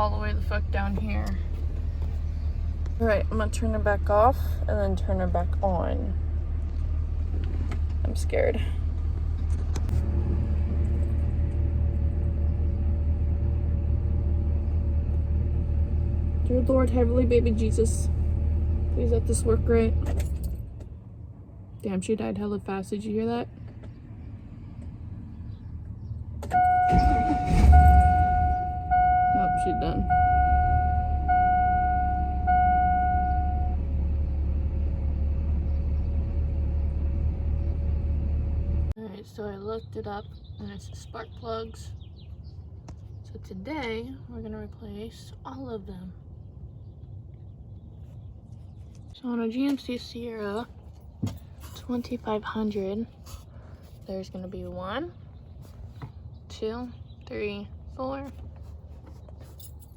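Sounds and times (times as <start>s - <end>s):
truck engine idling: 23.5s - 39.0s
low rumble: 23.9s - 39.0s
electronic warning tone: 26.5s - 33.8s.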